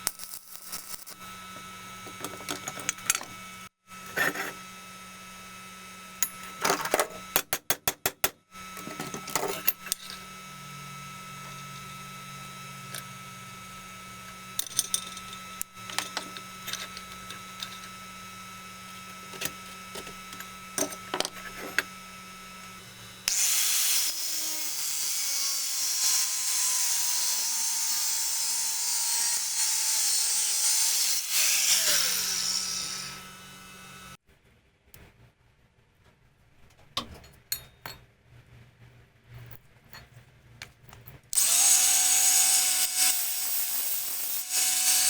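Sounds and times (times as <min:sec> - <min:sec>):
metal clinks and knocks: 0:14.6 - 0:18.0, 0:37.0 - 0:38.1
loud hissing tool: 0:16.2 - 0:34.2, 0:41.4 - 0:45.0.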